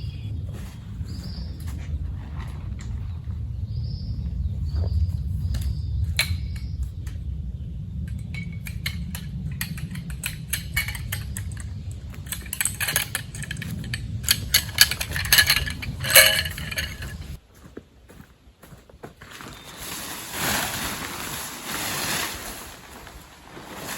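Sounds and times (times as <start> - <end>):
low rumble: 0.0 - 17.4
metal cookware clinking: 8.2 - 17.4.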